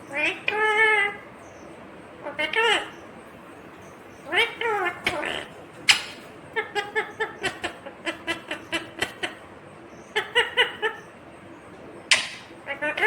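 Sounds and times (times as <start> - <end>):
parrot repeated calls: 4.2 - 9.4, 12.1 - 13.0.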